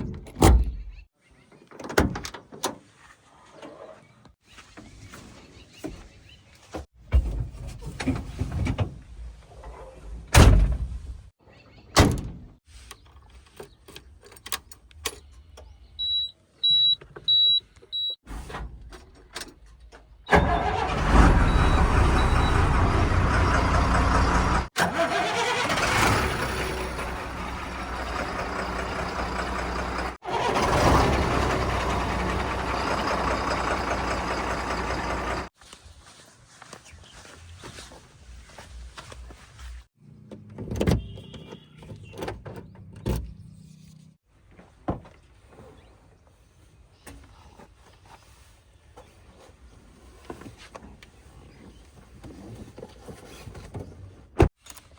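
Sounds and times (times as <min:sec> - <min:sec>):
knocks and clunks: 0:06.7 - 0:09.1
loud diesel engine running: 0:20.6 - 0:35.5.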